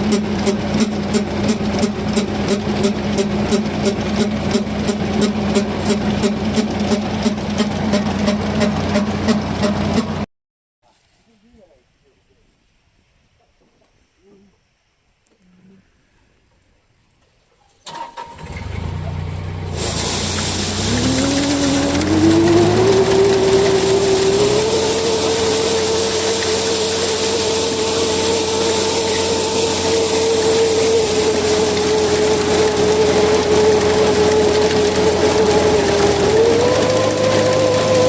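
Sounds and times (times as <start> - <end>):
combine harvester engine: 0.0 - 10.3, 17.9 - 38.0
machinery hissing: 19.6 - 38.0
high-pitched machinery whine: 20.2 - 38.0.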